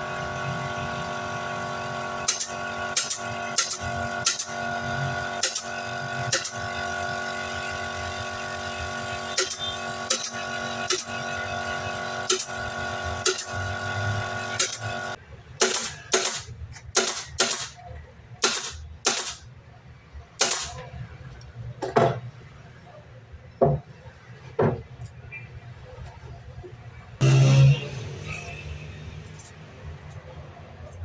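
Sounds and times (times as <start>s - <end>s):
machine humming: 0.0s - 16.4s, 27.2s - 28.7s
machine clicking: 2.3s - 4.6s, 5.4s - 5.7s, 6.3s - 6.6s, 9.4s - 11.2s, 12.3s - 12.6s, 13.2s - 13.6s, 14.6s - 15.0s, 15.6s - 17.8s, 18.4s - 19.4s, 20.4s - 20.8s
parts knocking on bench: 23.6s - 23.9s, 24.6s - 24.9s.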